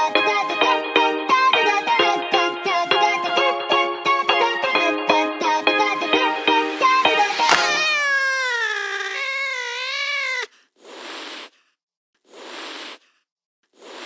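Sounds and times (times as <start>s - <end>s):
music: 0.0s - 7.8s
cat meowing: 7.4s - 10.5s
short puffs of hissy noise: 12.3s - 13.2s.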